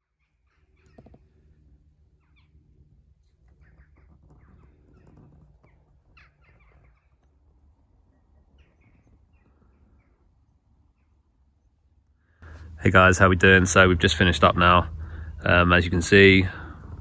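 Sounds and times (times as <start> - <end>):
short bird calls: 0.0 - 12.8
low background rumble: 0.0 - 17.0.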